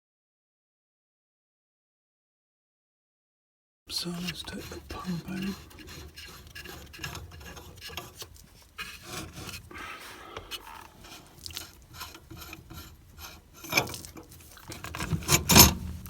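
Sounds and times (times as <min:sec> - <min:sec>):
hand tools scraping on metal: 0:03.9 - 0:16.0.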